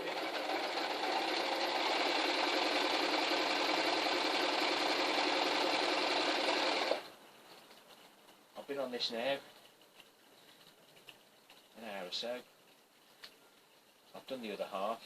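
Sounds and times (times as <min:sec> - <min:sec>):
sewing machine running: 0:00.0 - 0:07.1.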